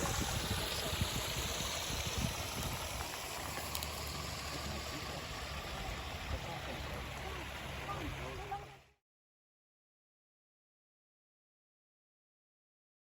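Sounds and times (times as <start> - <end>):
stream rushing over waterfall: 0.0 - 8.9.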